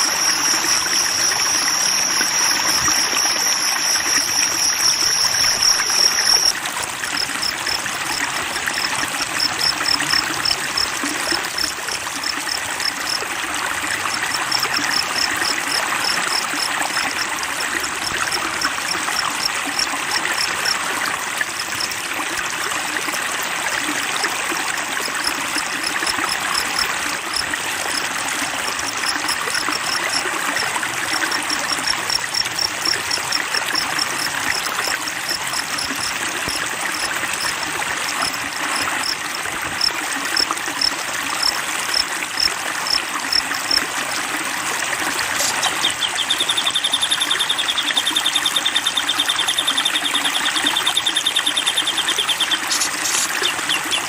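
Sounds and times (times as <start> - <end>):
thin high call: 0.0 - 6.6
stream water flowing: 0.0 - 54.0.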